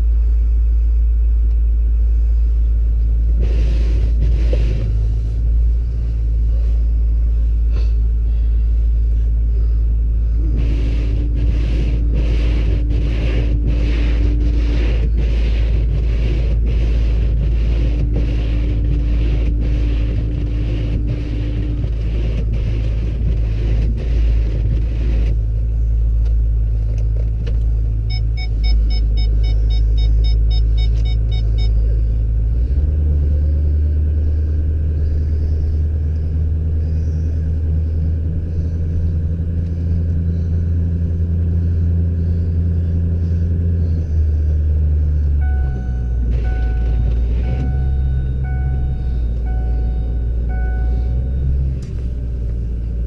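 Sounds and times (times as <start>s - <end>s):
vehicle engine rumbling under load: 0.0s - 53.0s.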